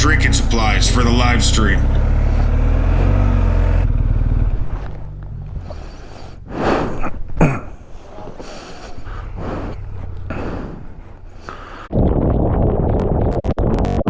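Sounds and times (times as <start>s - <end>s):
motorcycle engine running: 0.0s - 6.5s.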